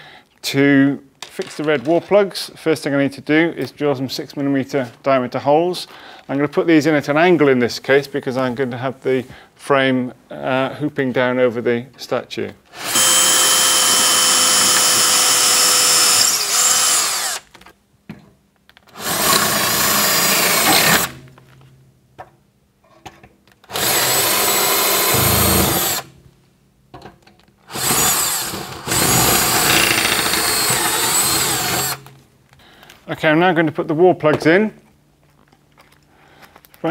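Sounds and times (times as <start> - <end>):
power drill boring into board: 12.7 - 17.5, 19.0 - 21.2, 23.7 - 26.1, 27.7 - 32.1.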